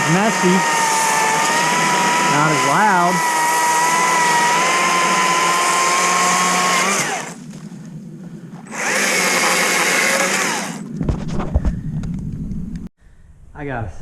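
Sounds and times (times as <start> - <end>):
chainsaw motor whining: 0.0 - 7.6, 8.6 - 11.0.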